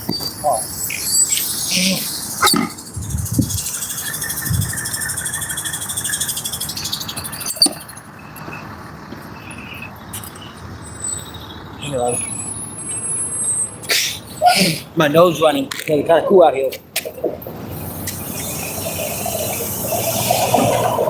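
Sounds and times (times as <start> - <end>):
bicycle wheel ticking: 0.7 - 8.4, 17.7 - 21.0.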